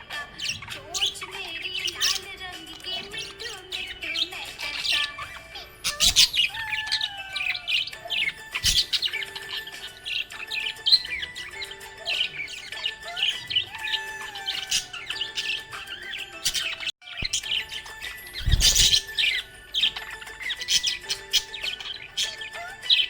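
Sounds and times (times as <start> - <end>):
budgerigar chattering: 0.4 - 23.0.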